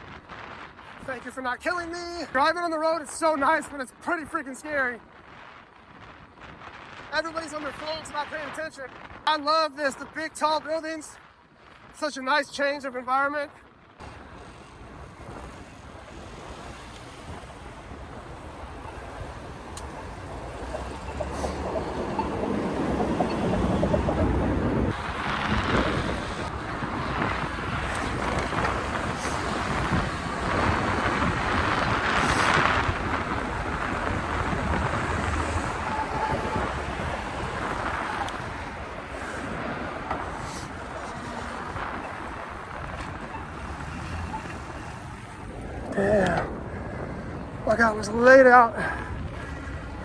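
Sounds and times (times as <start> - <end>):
wind rushing over microphone: 0.0 - 12.7, 13.4 - 50.0
road and traffic noise: 13.6 - 50.0.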